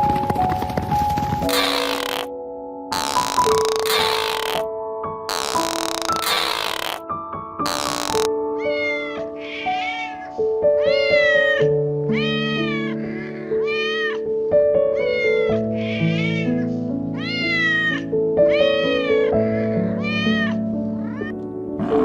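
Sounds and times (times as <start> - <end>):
background music with held notes: 0.0 - 22.0
cat meowing: 1.5 - 2.3, 3.0 - 4.6, 5.3 - 7.0, 7.7 - 14.3, 15.0 - 16.6, 17.2 - 21.4.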